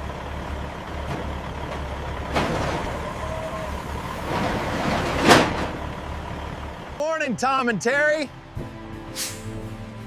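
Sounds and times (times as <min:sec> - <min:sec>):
truck engine running: 0:00.0 - 0:10.0
air brake hiss: 0:09.1 - 0:09.6.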